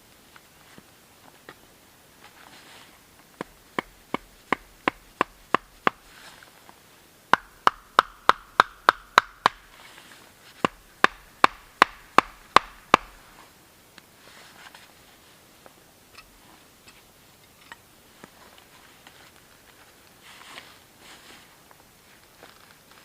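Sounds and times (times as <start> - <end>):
carving tool chopping wood: 3.4 - 6.0, 7.3 - 9.7, 10.6 - 13.2.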